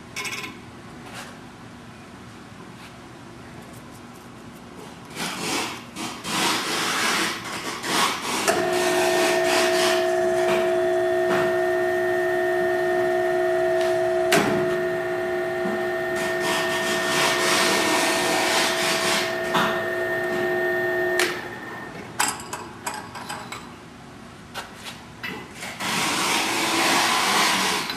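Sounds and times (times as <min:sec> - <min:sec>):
cutting and rubbing noise: 0:03.7 - 0:08.5, 0:25.6 - 0:27.9
tapping machine whine: 0:08.5 - 0:22.4.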